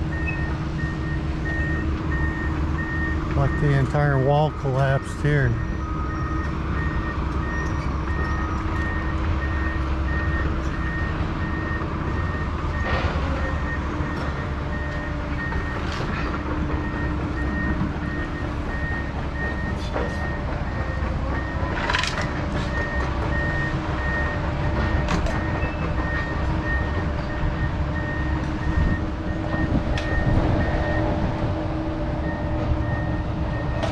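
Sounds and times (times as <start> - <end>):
low engine rumble: 0.0 - 33.9
backup alarm beeping: 22.7 - 31.2.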